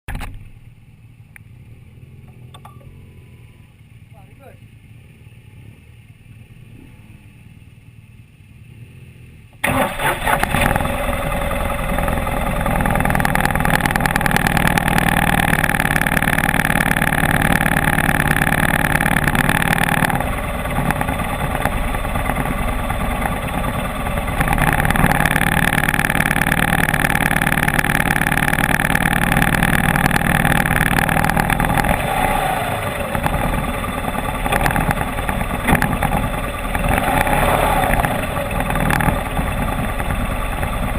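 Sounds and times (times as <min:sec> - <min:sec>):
motorcycle engine running: 0:00.1 - 0:40.9.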